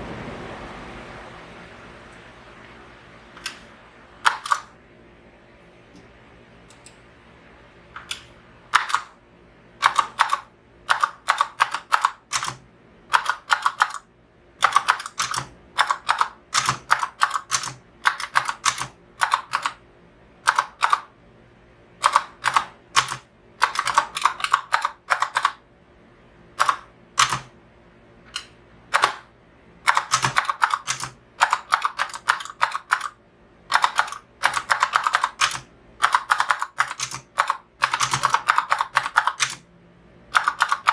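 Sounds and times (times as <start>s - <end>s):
mechanical keyboard key clacks: 4.2s - 4.7s, 9.8s - 14.0s, 14.6s - 19.8s, 22.0s - 25.6s, 26.6s - 27.5s, 29.9s - 39.6s, 40.3s - 40.9s.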